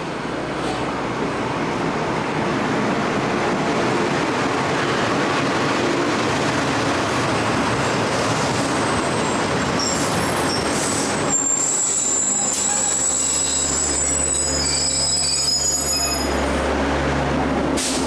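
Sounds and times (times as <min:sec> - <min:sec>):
train rumbling: 0:00.0 - 0:18.0
train brakes squealing: 0:09.0 - 0:16.4.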